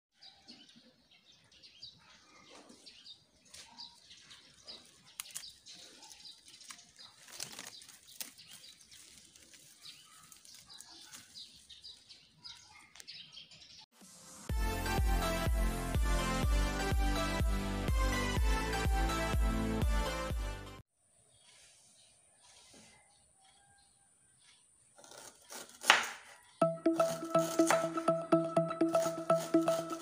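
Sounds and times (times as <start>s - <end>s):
small birds chirping: 0.2s - 13.9s, 21.1s - 26.6s.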